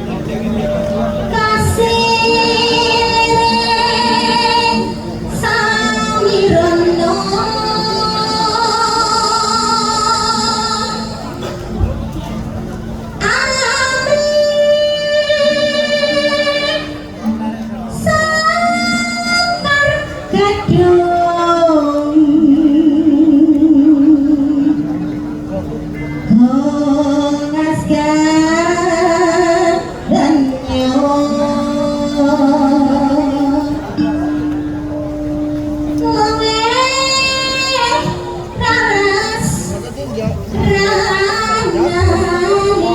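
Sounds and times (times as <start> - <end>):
woman singing with vibrato: 0.0 - 11.4, 13.2 - 42.9
instrumental accompaniment: 0.0 - 42.9
woman singing long high notes: 13.2 - 17.2.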